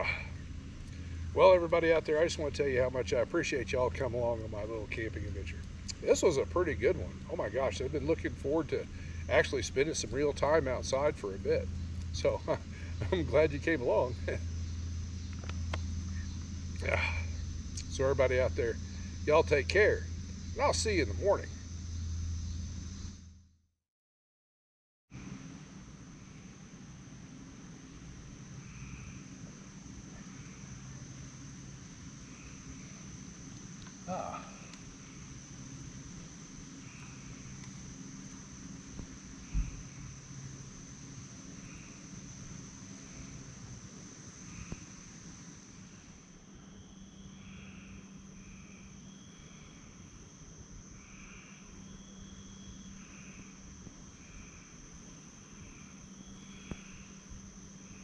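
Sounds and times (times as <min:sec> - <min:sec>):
steady low rumble: 0:00.0 - 0:23.4
insects chirring trill: 0:00.0 - 0:23.5, 0:25.1 - 0:58.0
soft insect chirps: 0:00.0 - 0:23.5, 0:25.2 - 0:58.0.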